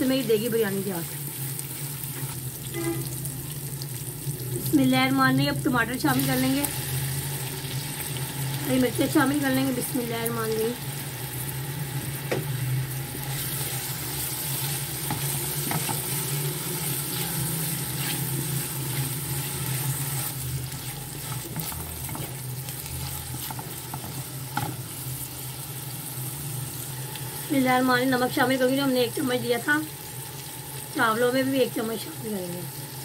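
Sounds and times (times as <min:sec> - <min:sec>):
vegetables sizzling in hot oil: 0:00.0 - 0:33.0
spatula stirring in pot: 0:01.2 - 0:03.0, 0:13.3 - 0:24.9.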